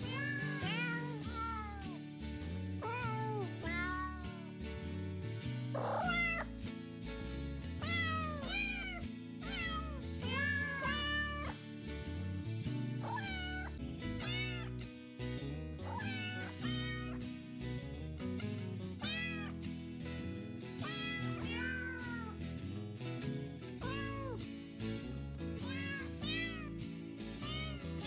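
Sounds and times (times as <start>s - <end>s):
cat meowing: 0.0s - 2.0s, 2.8s - 4.5s, 5.8s - 6.5s, 7.8s - 11.6s, 13.0s - 14.7s, 15.8s - 17.2s, 19.0s - 19.5s, 20.8s - 22.4s, 23.8s - 24.4s, 25.6s - 26.8s, 27.4s - 27.9s.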